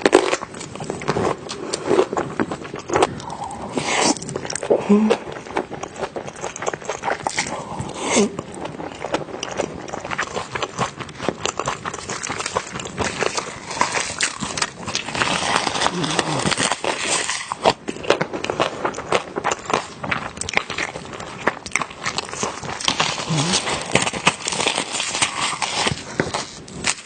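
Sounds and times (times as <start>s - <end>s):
chewing and lip smacks: 1.0s - 27.0s
person humming: 4.7s - 5.3s, 15.9s - 16.6s.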